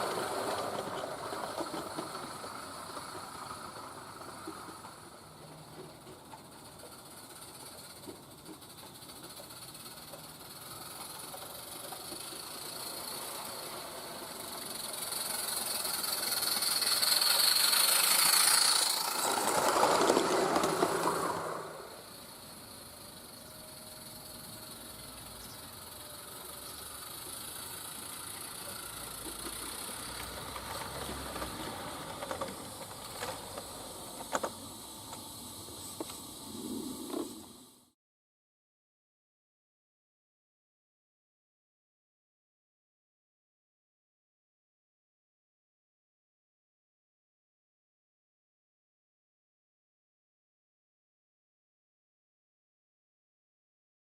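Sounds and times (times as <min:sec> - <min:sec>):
steam locomotive hissing: 0:00.0 - 0:38.0.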